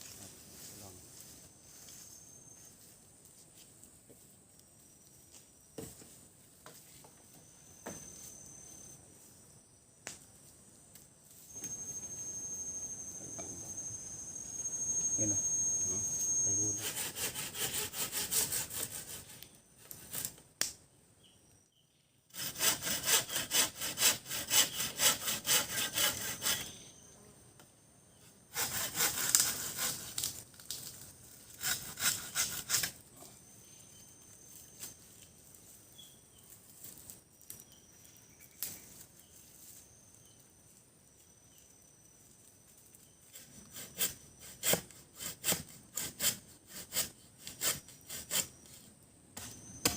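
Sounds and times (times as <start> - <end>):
hand saw cutting wood: 16.5 - 20.3, 22.3 - 26.8, 28.5 - 30.4, 31.5 - 33.0, 43.4 - 48.5.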